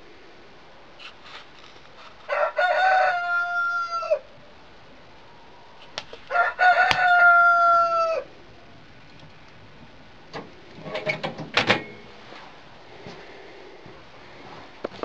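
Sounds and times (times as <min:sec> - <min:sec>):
rooster crowing: 0:02.2 - 0:04.4, 0:06.2 - 0:08.4.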